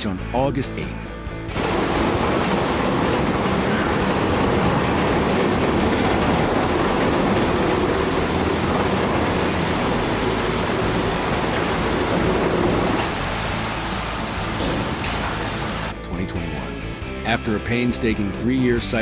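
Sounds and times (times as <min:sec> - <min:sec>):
building collapsing roar: 0:01.5 - 0:15.9.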